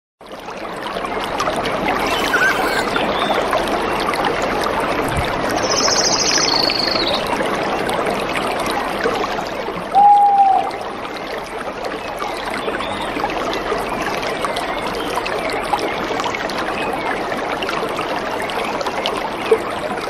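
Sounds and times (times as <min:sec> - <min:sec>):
stream running water: 0:00.2 - 0:20.0
birds calling: 0:02.0 - 0:03.4.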